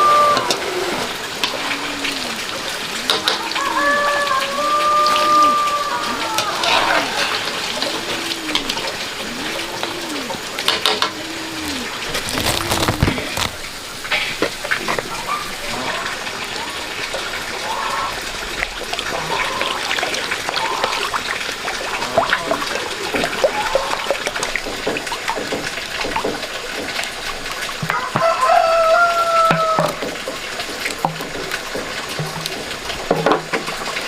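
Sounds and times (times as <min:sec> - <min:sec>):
rooster crowing: 0:00.0 - 0:00.7, 0:03.4 - 0:07.4, 0:27.9 - 0:30.0
running splashing water: 0:00.0 - 0:34.0.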